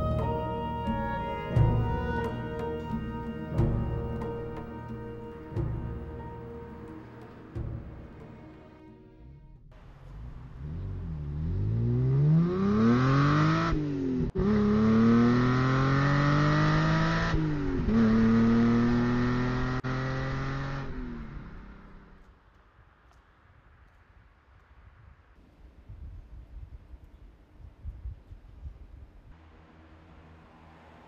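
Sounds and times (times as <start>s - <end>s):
car engine accelerating hard: 9.7s - 22.2s.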